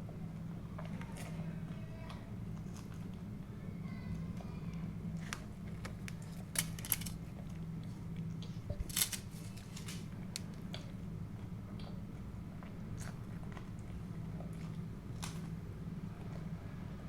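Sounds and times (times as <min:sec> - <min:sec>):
steady low hum: 0:00.0 - 0:17.0
eating crackles and clicks: 0:05.1 - 0:15.6.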